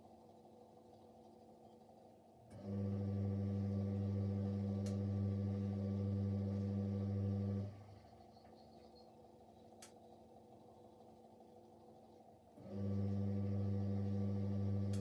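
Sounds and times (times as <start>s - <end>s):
washing machine motor humming: 2.5s - 8.1s, 12.6s - 15.0s.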